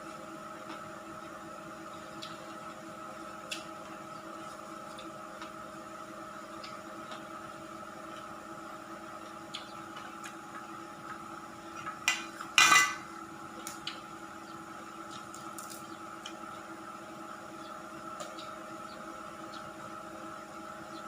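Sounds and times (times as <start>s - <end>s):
steady background hum: 0.0s - 21.0s
dishes clinking: 12.1s - 13.0s
utensils clattering: 12.1s - 13.0s.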